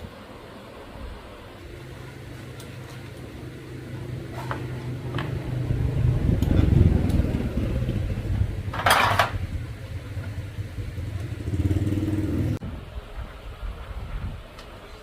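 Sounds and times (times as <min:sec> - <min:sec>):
motorcycle engine running: 0:01.8 - 0:12.6.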